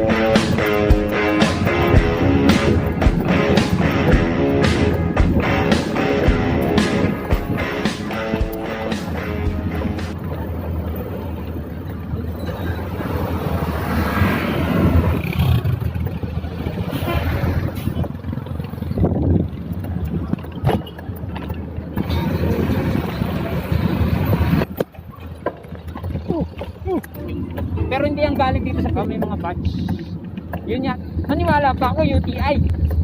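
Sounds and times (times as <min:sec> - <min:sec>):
road traffic passing: 0:00.0 - 0:33.0
wind rumbling on microphone: 0:09.6 - 0:33.0.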